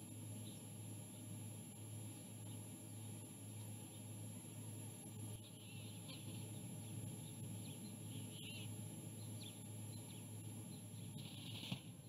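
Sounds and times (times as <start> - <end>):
steady low hum: 0.0 - 12.0
faint bird chirps: 5.0 - 12.0.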